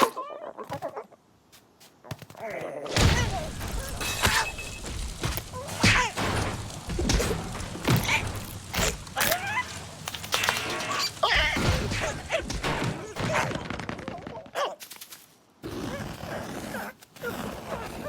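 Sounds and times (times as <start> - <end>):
cartoon thumps and crashes: 2.9 - 9.2.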